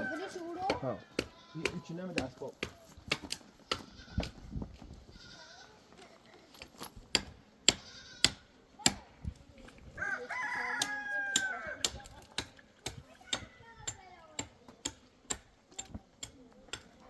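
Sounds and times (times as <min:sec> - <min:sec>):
rooster crowing: 0:00.0 - 0:00.6, 0:10.0 - 0:11.8.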